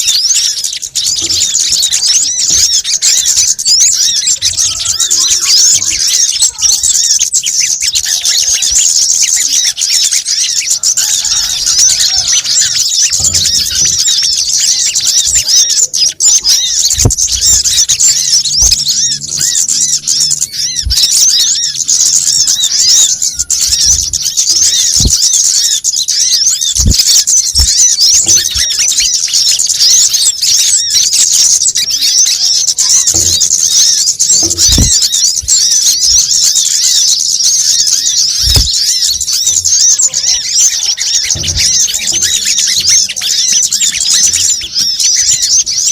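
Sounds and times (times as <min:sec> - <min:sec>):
small birds twittering: 0:00.0 - 0:45.9
low thumps: 0:34.4 - 0:35.6.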